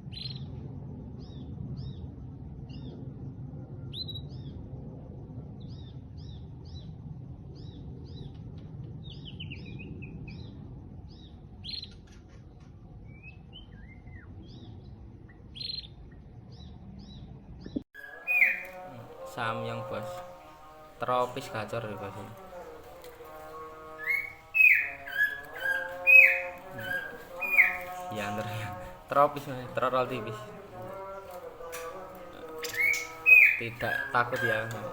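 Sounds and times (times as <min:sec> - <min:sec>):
steady low rumble: 0:00.0 - 0:17.8
songbird chirping: 0:16.5 - 0:34.9.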